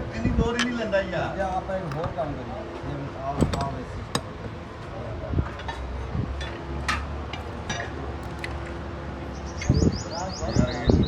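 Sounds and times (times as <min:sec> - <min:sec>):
knocks and clinks on metal: 0:03.3 - 0:04.6.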